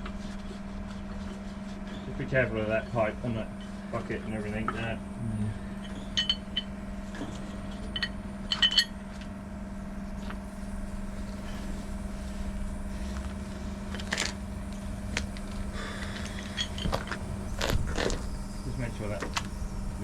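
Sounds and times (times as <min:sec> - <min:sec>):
engine humming: 0:00.0 - 0:20.0
metallic clinks: 0:05.8 - 0:06.8, 0:07.4 - 0:09.0.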